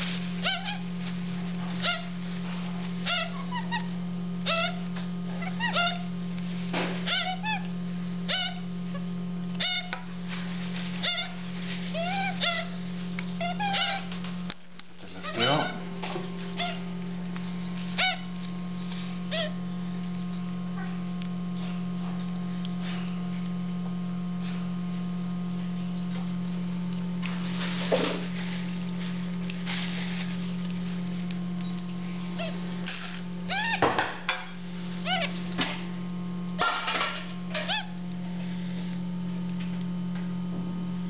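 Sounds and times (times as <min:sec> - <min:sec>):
steady low hum: 0:00.0 - 0:41.0
parrot chicks begging calls: 0:00.1 - 0:00.9, 0:01.6 - 0:06.2, 0:07.0 - 0:10.1, 0:10.9 - 0:14.3, 0:15.0 - 0:20.6, 0:31.5 - 0:35.6, 0:36.6 - 0:38.2.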